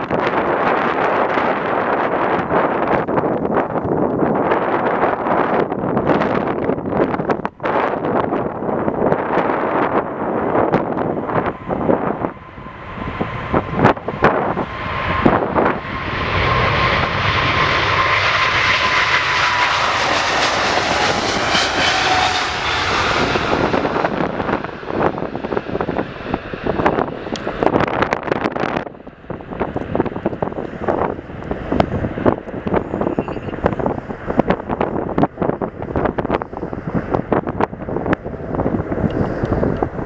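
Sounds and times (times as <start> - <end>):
jet airliner engine roar: 0.0 - 40.0
wind buffeting microphone: 0.0 - 40.0.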